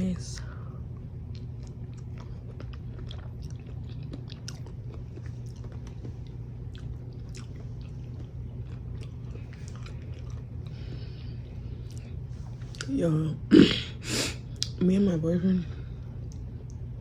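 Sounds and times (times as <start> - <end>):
low hum: 0.0 - 17.0
person chewing food: 0.9 - 12.9.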